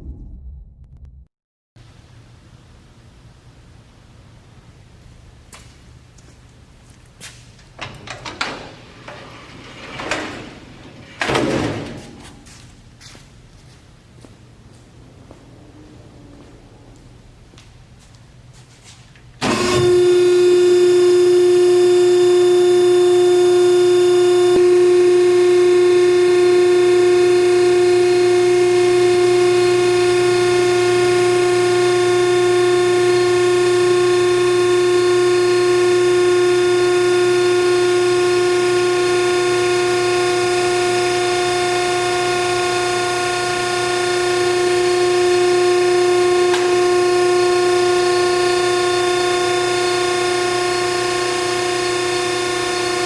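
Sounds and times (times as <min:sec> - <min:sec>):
hydraulic pump whining: 0:19.4 - 0:53.0.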